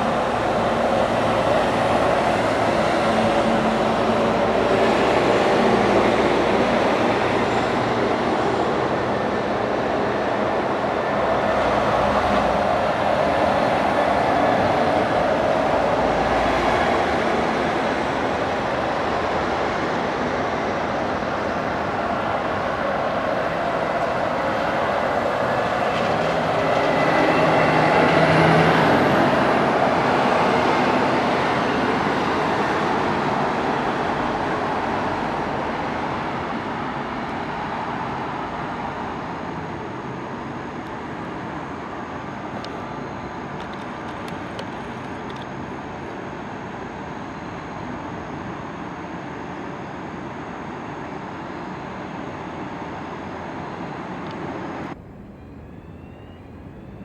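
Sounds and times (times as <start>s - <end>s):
heavy vehicle passing: 0.0s - 36.2s
road traffic: 0.0s - 57.0s.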